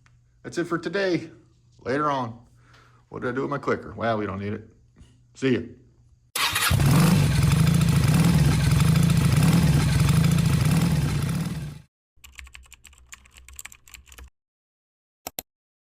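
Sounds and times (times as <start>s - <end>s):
motorcycle engine running: 6.4s - 11.9s.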